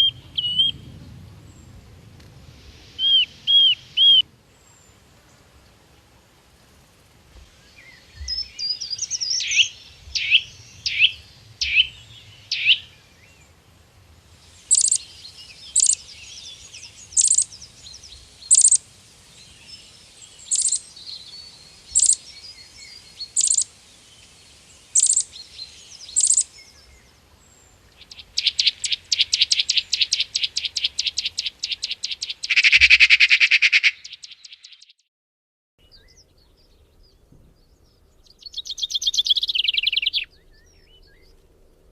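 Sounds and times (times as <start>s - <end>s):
harsh bird call: 0.0s - 0.9s, 3.0s - 4.2s, 8.2s - 12.9s, 28.0s - 34.8s
fast high bird trill: 3.0s - 4.2s, 14.7s - 16.1s, 16.7s - 17.6s, 18.5s - 18.8s, 21.9s - 22.3s, 23.3s - 23.7s, 25.0s - 25.3s, 26.1s - 26.5s, 28.0s - 34.8s.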